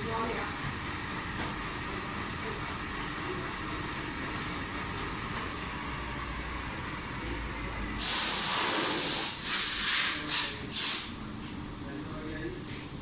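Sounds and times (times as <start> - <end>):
loud hiss: 8.0 - 11.2.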